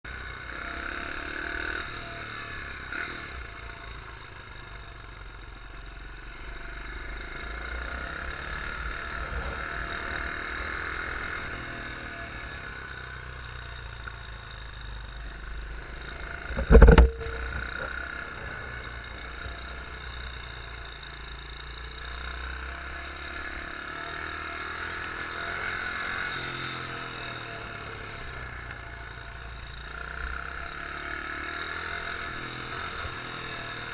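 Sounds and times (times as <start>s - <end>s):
motorbike engine running: 0.1s - 33.9s
loud thump: 16.5s - 18.0s.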